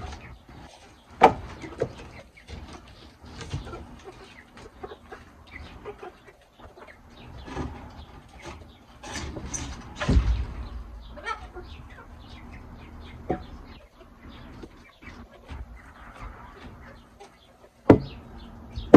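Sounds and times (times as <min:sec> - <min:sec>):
chickens clucking: 0:00.0 - 0:18.9.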